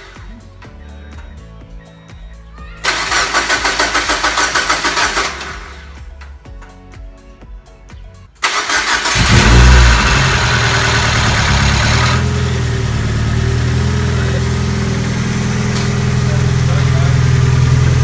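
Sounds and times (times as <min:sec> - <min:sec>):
car engine idling: 0:02.8 - 0:06.0, 0:08.4 - 0:18.0
starter cranking engine: 0:02.8 - 0:06.2, 0:08.4 - 0:18.0.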